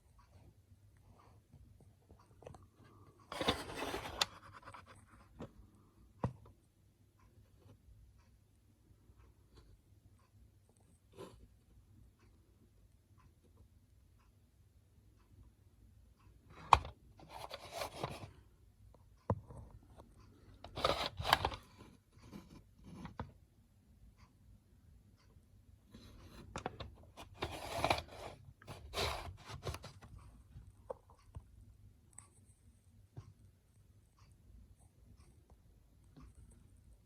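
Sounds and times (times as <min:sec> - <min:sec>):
scraping and rustling: 0:03.3 - 0:05.0, 0:20.6 - 0:22.6, 0:26.0 - 0:30.3.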